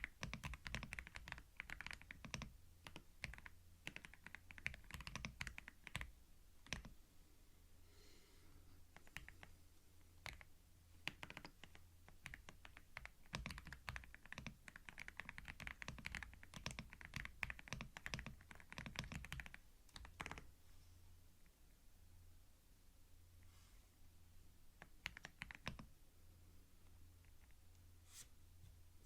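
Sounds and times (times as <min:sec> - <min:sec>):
typing on a keyboard: 0:00.0 - 0:06.9, 0:09.0 - 0:09.5, 0:10.2 - 0:20.5, 0:24.8 - 0:25.9.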